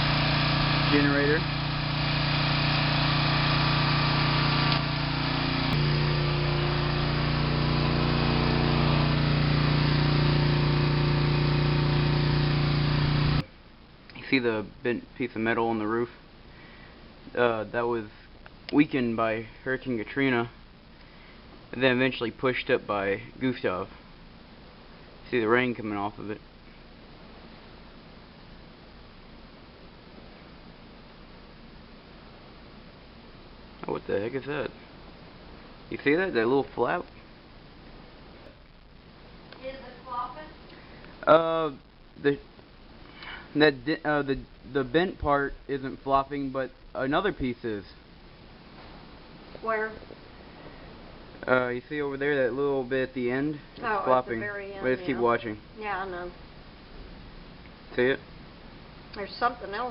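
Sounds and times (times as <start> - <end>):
generator engine running: 0.0 - 13.4
rain hissing: 0.0 - 13.5, 33.4 - 59.9
low hum: 0.0 - 59.8.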